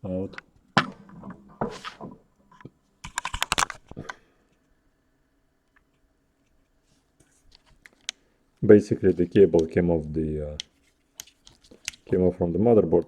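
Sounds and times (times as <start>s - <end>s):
laptop parts clicking and rattling: 0.3s - 4.2s, 10.6s - 12.1s.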